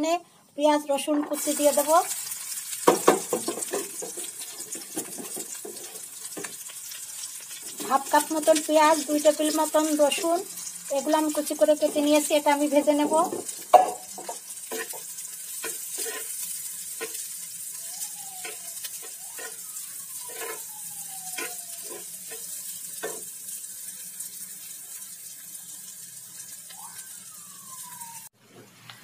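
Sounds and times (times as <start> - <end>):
onion and garlic sizzling in oil: 0.0 - 29.0
metal spatula scraping pan: 14.6 - 17.3, 20.2 - 20.7, 21.4 - 23.2.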